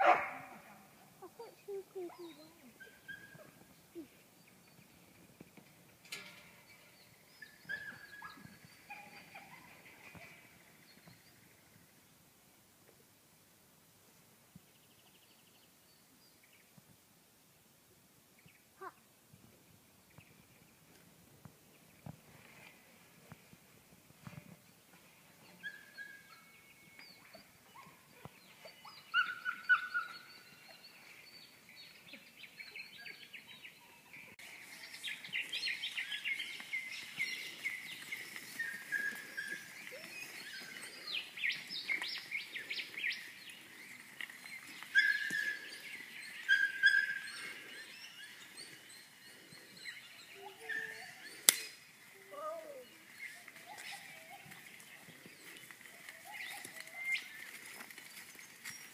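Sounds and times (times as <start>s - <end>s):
wild birds chirping and whistling: 6.7s - 11.4s, 25.4s - 58.9s.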